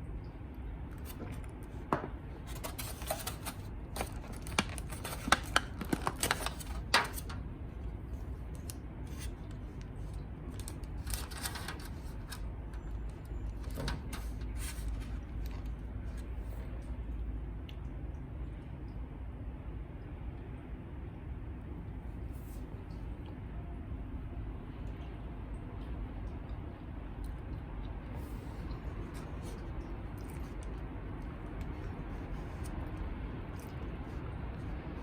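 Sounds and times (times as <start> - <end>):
light clicks taps and scrapes: 0.9 - 7.4.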